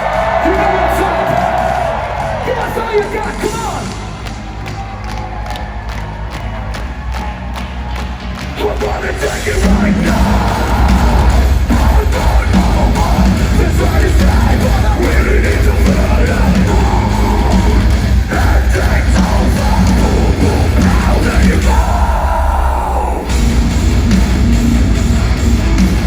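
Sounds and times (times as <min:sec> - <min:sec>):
metalcore band playing live: 0:00.0 - 0:05.2, 0:05.9 - 0:26.0
shouted and sung vocals: 0:00.0 - 0:23.4
guitars: 0:06.4 - 0:22.4, 0:23.3 - 0:26.0
heavy low-end beat: 0:08.5 - 0:26.0.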